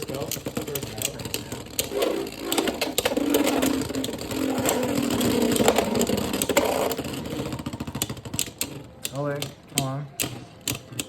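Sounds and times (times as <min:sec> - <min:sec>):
spinning tops whirring: 0:00.0 - 0:08.8
tops clacking: 0:00.0 - 0:11.0.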